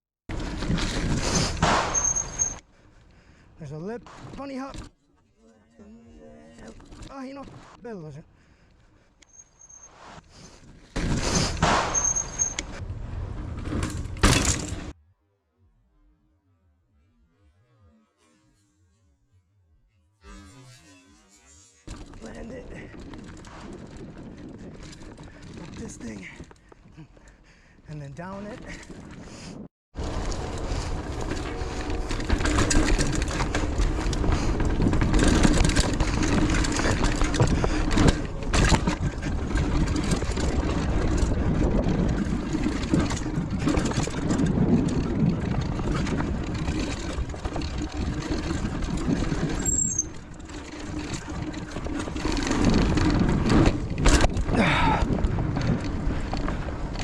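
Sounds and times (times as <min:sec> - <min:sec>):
bike knocks and rattles: 0:00.3 - 0:02.6, 0:10.5 - 0:15.0, 0:21.9 - 0:27.4, 0:28.2 - 0:57.0
bike rolling on dirt trail: 0:00.3 - 0:05.0, 0:06.0 - 0:15.0, 0:21.8 - 0:57.0
wind rushing over microphone: 0:28.8 - 0:49.6, 0:52.5 - 0:57.0.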